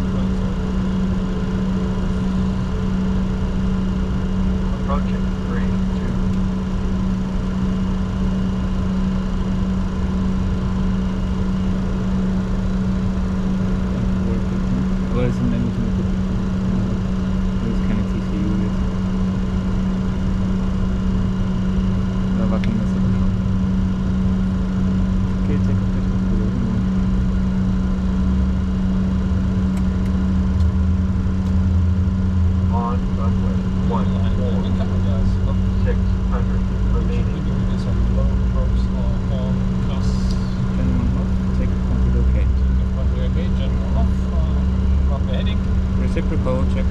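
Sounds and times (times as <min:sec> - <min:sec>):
jet engines rumbling and humming: 0:00.0 - 0:46.9.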